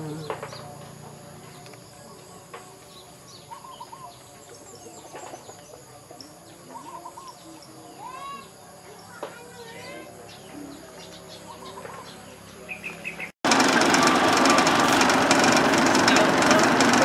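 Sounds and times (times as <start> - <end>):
birds chirping: 0.0 - 13.4.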